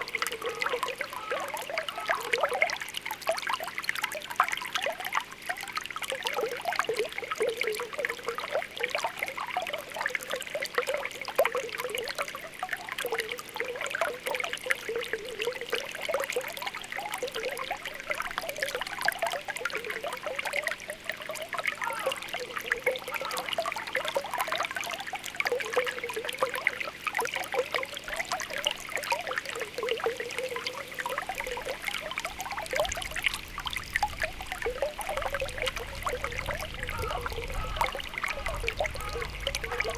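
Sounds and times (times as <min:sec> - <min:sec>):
spring water bubbling: 0:00.0 - 0:39.9
water trickling: 0:00.0 - 0:39.9.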